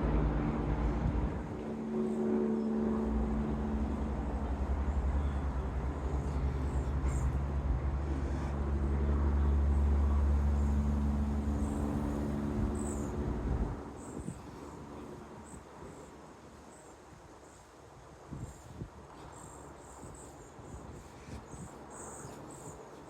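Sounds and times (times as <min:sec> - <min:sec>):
engine hum: 0:00.0 - 0:15.6
vehicle engine rumbling: 0:00.0 - 0:16.0.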